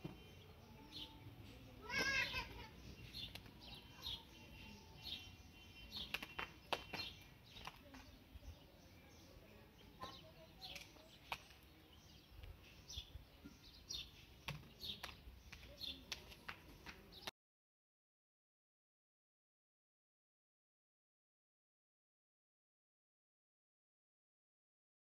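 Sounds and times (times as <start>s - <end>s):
small birds chirping: 0.0s - 17.3s.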